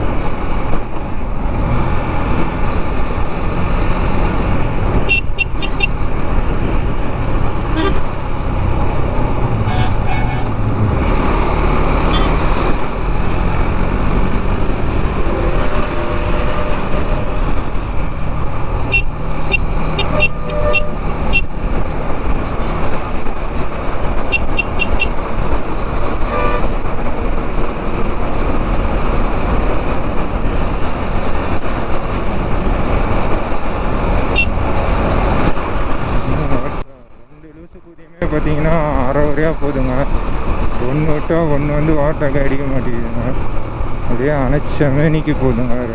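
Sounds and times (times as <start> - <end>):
wind and road noise: 0.0 - 45.9
motorcycle engine running: 2.6 - 36.8
short horn toots: 5.1 - 6.0, 9.6 - 10.6, 18.9 - 21.5, 26.3 - 26.8, 34.3 - 34.6.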